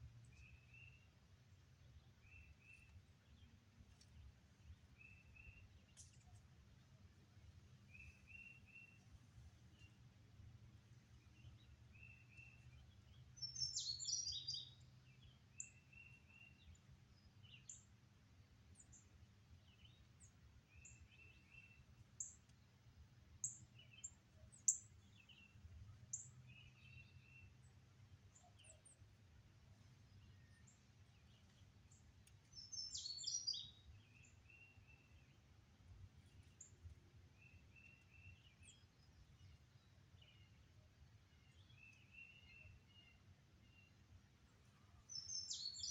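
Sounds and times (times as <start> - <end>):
birds singing and calling: 12.0 - 14.8, 32.5 - 35.0, 45.1 - 45.9.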